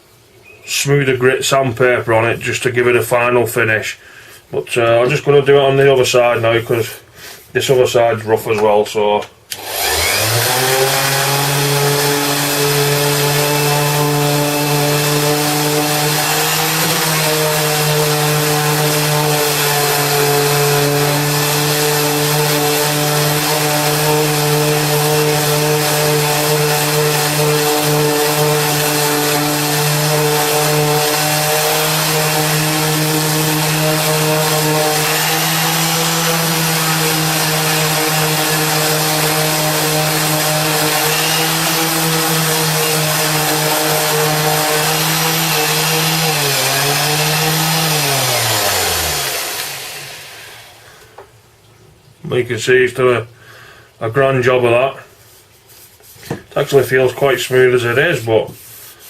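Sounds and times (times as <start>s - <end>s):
orbital sander sanding wood: 9.6s - 50.9s, 55.2s - 59.0s.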